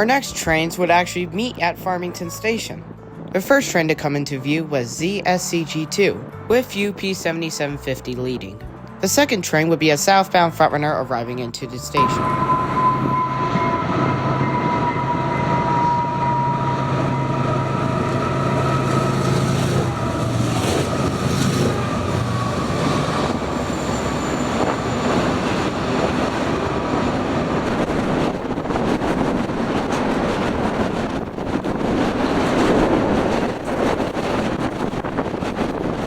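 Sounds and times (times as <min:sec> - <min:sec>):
train passing: 0:11.2 - 0:36.0
high ringing tone: 0:12.0 - 0:27.0.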